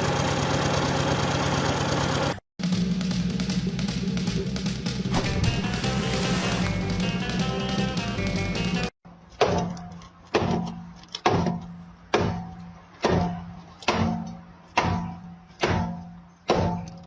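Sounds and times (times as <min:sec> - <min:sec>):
background music: 0:02.7 - 0:08.9.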